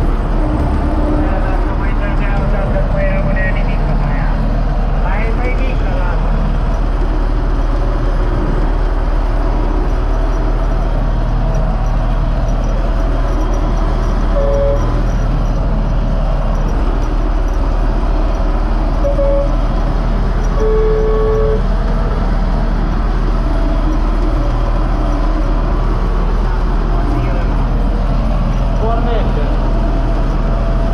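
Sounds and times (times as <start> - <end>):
tractor diesel engine running: 0.0 - 30.9
short high tones: 14.3 - 15.2, 19.0 - 19.7, 20.4 - 21.7.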